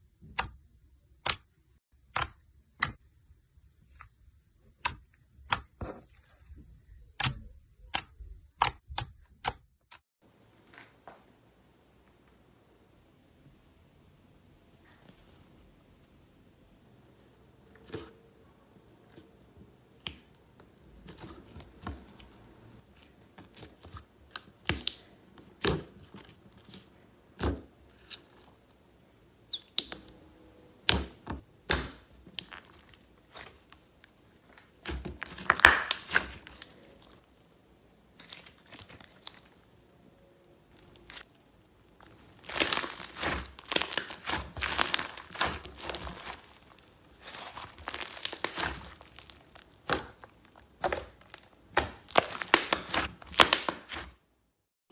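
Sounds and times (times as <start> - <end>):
slime crackling: 34.8 - 37.4, 38.0 - 39.8, 40.7 - 54.1.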